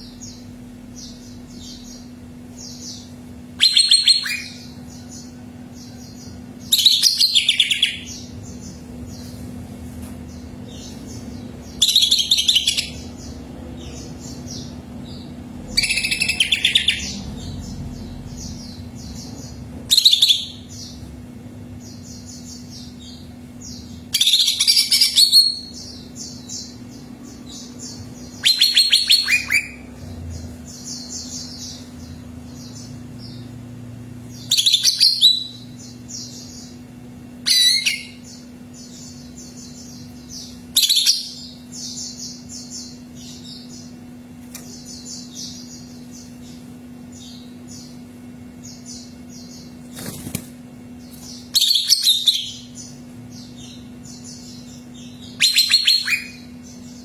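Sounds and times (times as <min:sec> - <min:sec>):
bird singing loud phrases: 0:00.0 - 0:09.4, 0:10.3 - 0:57.0
low hum: 0:00.0 - 0:34.6
soft high chirping: 0:51.1 - 0:57.0.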